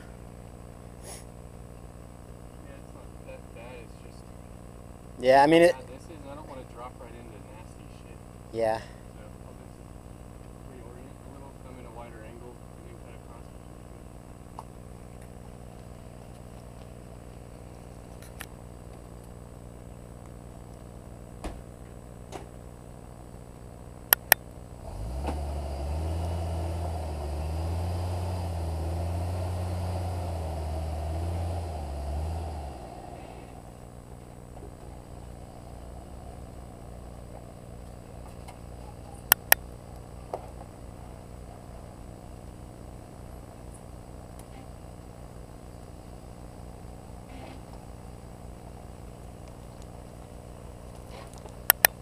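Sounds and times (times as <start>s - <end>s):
sharp clicks: 24.1s - 24.4s, 39.3s - 39.6s, 51.4s - 52.0s
engine idling and revving: 24.1s - 49.3s.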